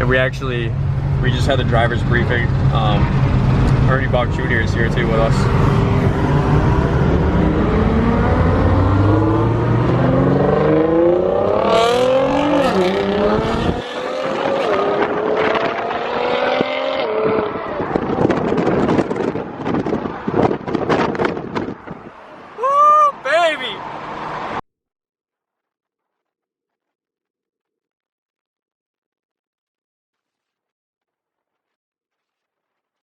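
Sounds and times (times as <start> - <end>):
car engine accelerating hard: 0.0 - 22.5.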